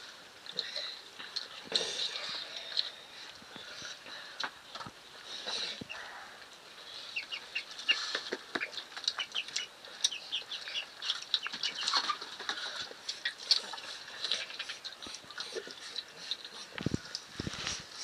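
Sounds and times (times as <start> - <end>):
chicks peeping: 6.9 - 17.7.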